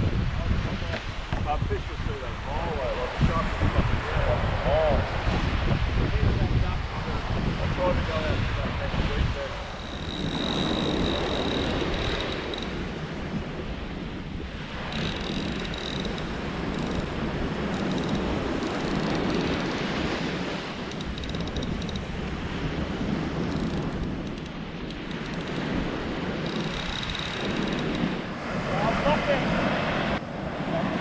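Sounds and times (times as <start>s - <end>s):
surf washing onto beach: 0.0s - 9.8s, 28.0s - 31.0s
wind on microphone: 0.0s - 31.0s.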